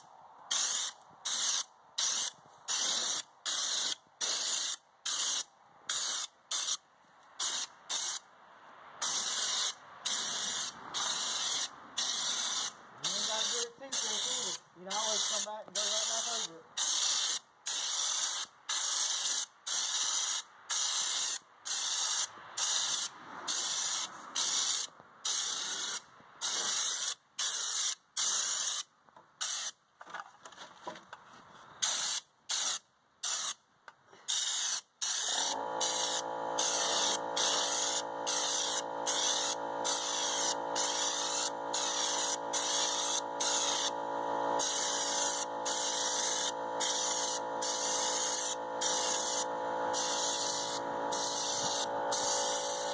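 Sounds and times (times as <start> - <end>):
spray gun hissing: 0.5 - 6.8, 7.4 - 8.2, 9.0 - 28.8, 34.3 - 52.9
motor hum: 35.4 - 52.9.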